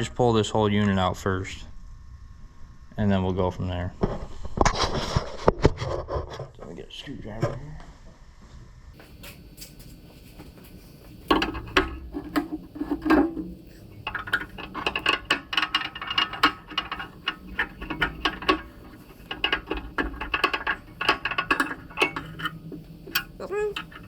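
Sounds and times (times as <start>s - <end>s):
hand tools rattling on metal: 10.8s - 24.0s.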